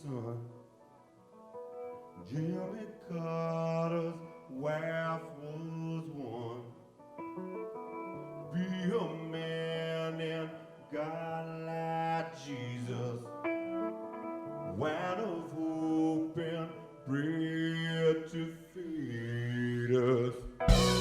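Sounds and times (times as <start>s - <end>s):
person singing: 0.0s - 0.6s, 2.2s - 21.0s
electric guitar bending notes: 20.6s - 21.0s
live band music: 20.6s - 21.0s.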